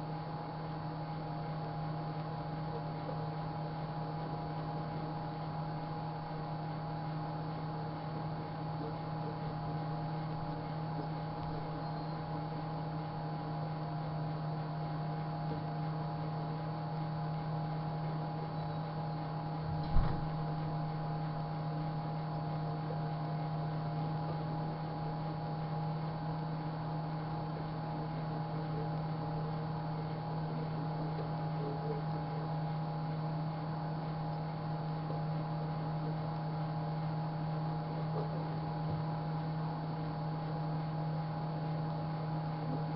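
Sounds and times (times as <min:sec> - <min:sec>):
microwave oven humming: 0:00.0 - 0:42.9
short thump: 0:19.8 - 0:20.3.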